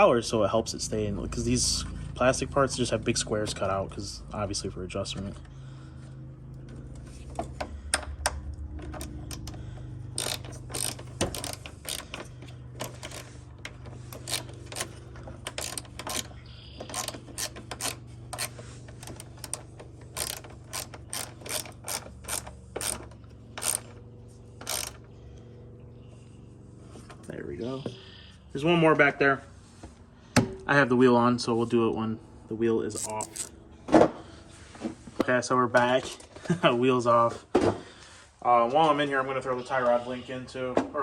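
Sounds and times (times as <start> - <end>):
hand ratchet clicking: 7.9 - 24.0, 24.6 - 25.1, 33.0 - 33.5.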